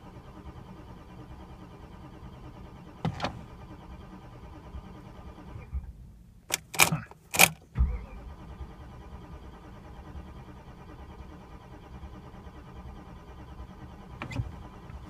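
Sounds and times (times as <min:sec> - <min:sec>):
car electrical hum: 0:00.0 - 0:15.0
ignition key clicks and jangles: 0:06.5 - 0:07.7.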